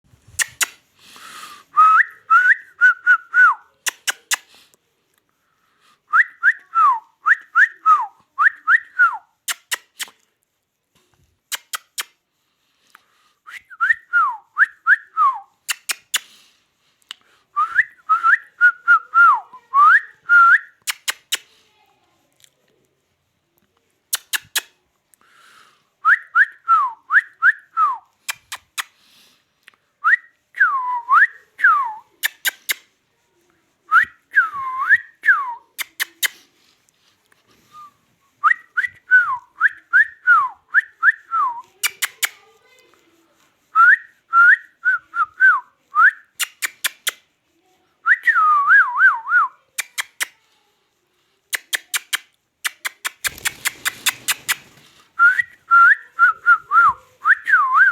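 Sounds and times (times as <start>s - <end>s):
sharp clicks: 3.8s - 4.5s.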